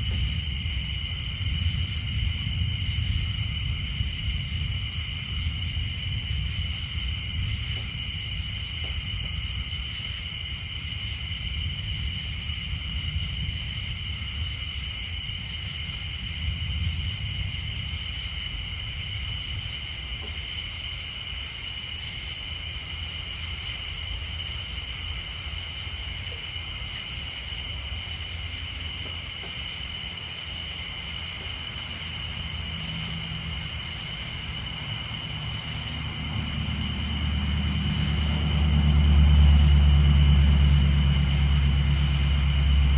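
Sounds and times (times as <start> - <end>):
tree frogs and insects chorus: 0.0 - 42.9
low rumble: 31.2 - 42.9.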